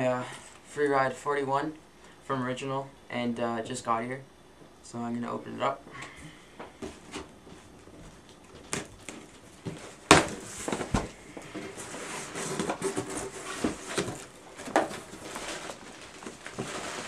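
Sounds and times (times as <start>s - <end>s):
cardboard rustling: 8.4s - 17.0s.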